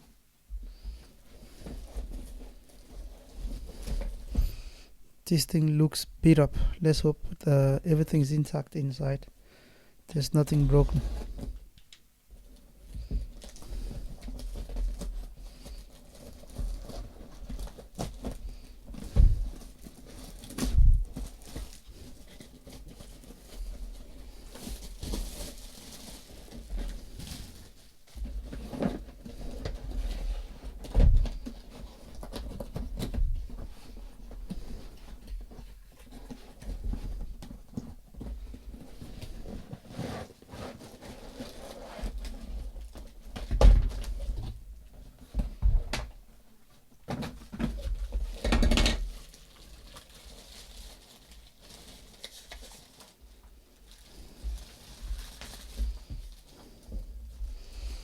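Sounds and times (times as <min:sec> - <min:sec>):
packaging rustling: 0:10.4 - 0:44.4, 0:47.2 - 0:57.1.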